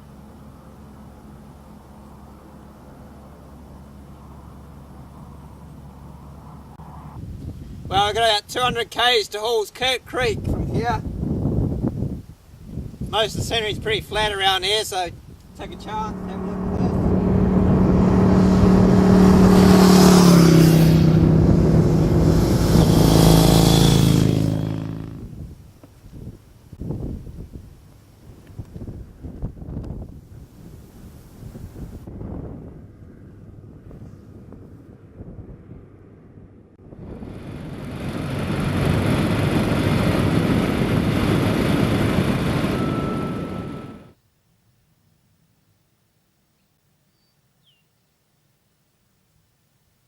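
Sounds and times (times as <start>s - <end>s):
wind and road rush: 0.0s - 8.9s, 9.9s - 44.2s
vehicle passing by: 0.4s - 7.3s, 15.5s - 25.3s, 32.8s - 44.1s
thin steady whine: 15.4s - 25.0s, 37.0s - 44.2s
motorcycle accelerating away: 15.5s - 25.5s, 36.8s - 44.1s.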